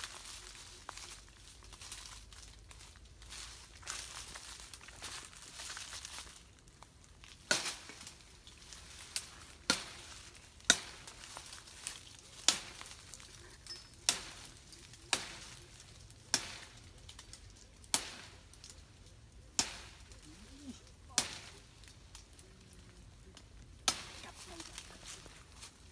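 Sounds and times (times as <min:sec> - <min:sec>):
sharp chopping strikes: 0:07.5 - 0:07.9, 0:09.6 - 0:10.1, 0:10.7 - 0:11.2, 0:12.4 - 0:12.9, 0:15.1 - 0:15.5, 0:16.3 - 0:16.8, 0:17.9 - 0:18.4, 0:19.6 - 0:20.0, 0:23.8 - 0:24.2.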